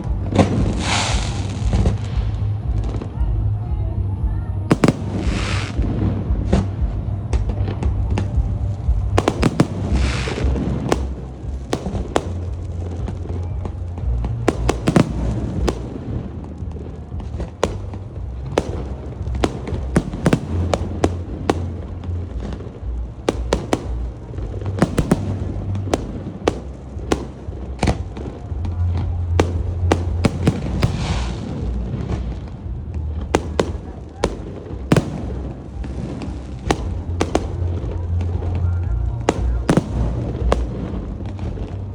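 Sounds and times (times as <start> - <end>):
firework bangs: 0.0 - 2.4, 4.7 - 41.9
music with steady bass: 0.0 - 41.9
firework crackling hiss: 0.6 - 2.4, 4.7 - 5.8, 9.2 - 13.1, 29.4 - 32.5.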